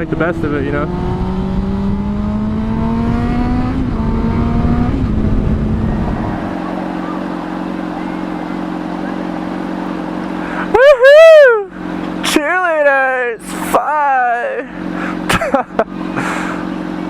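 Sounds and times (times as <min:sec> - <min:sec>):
motorcycle engine revving: 0:00.0 - 0:17.0
wind noise on microphone: 0:00.9 - 0:06.6.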